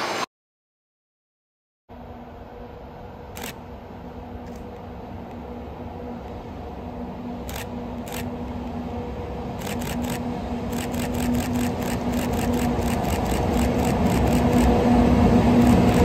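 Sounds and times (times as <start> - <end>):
electric train humming: 1.9 - 16.0
quick sharp high ticks: 9.6 - 14.8, 15.6 - 16.0.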